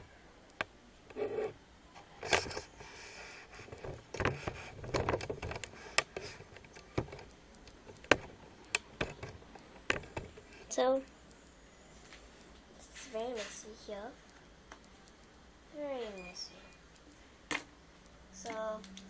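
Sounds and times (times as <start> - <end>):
small objects clicking and tapping: 4.9 - 10.5.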